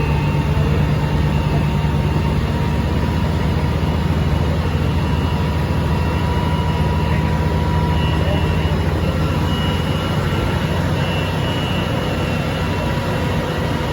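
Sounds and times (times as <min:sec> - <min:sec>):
diesel machinery engine drone: 0:00.0 - 0:13.9
faint high whine: 0:00.0 - 0:13.9.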